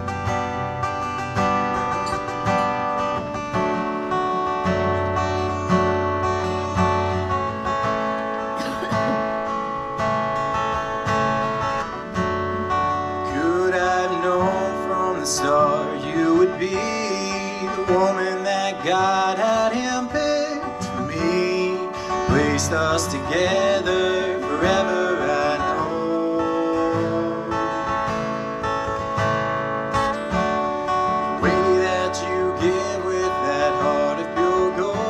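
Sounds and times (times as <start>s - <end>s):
acoustic guitar strumming: 0.0s - 35.0s
person singing: 13.3s - 28.0s, 31.4s - 35.0s.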